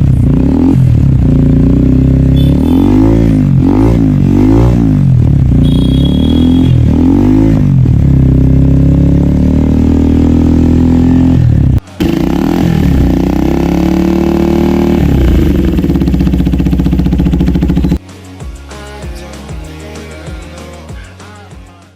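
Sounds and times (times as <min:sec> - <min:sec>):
motorcycle engine revving: 0:00.0 - 0:18.0
music: 0:11.8 - 0:13.2, 0:17.9 - 0:21.9.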